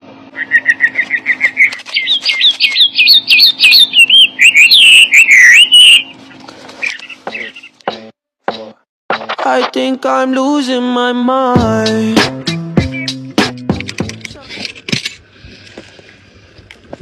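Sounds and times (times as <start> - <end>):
songbird singing: 0.3 - 7.8, 12.5 - 13.3.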